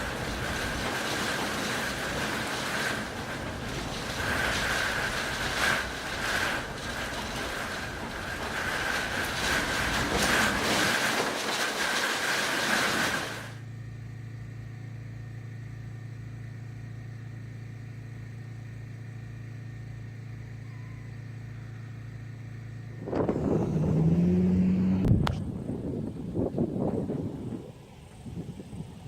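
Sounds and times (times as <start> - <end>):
vehicle engine accelerating: 22.6 - 28.7
wind on microphone: 23.0 - 29.0.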